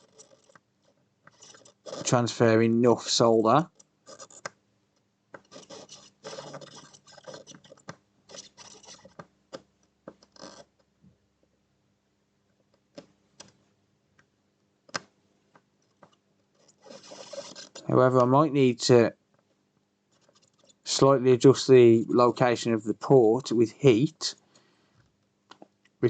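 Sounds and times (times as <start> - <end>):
soldering iron scratching metal: 1.3 - 2.2, 5.4 - 9.2, 16.6 - 18.0.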